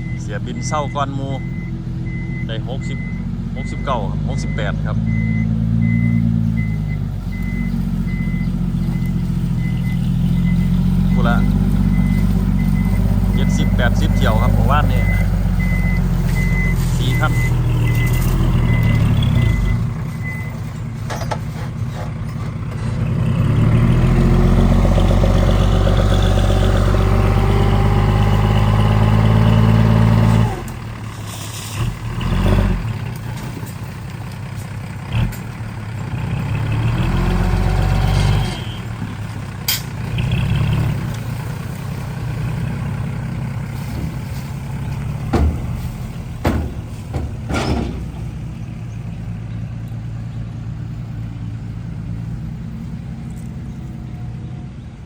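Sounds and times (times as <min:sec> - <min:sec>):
reversing beeps: 0:00.0 - 0:20.6
diesel truck engine revving: 0:00.0 - 0:55.0.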